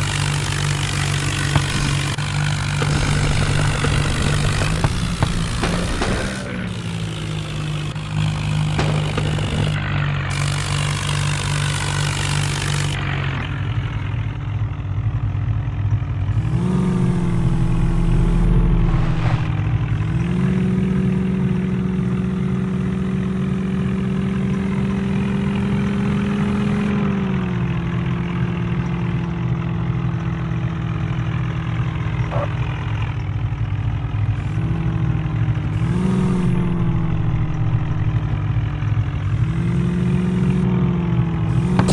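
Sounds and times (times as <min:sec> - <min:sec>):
heavy diesel engine revving: 0:00.0 - 0:14.2, 0:16.2 - 0:24.1, 0:34.3 - 0:41.9.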